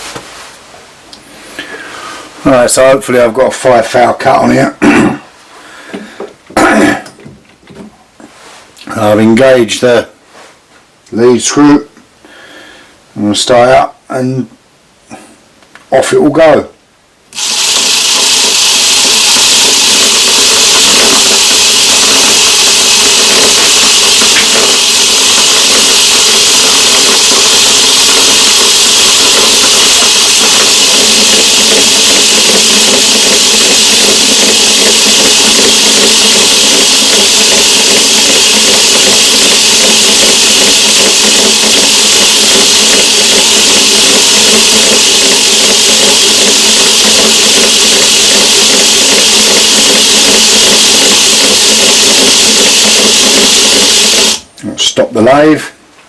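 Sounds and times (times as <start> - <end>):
lathe whining: 17.3 - 54.5.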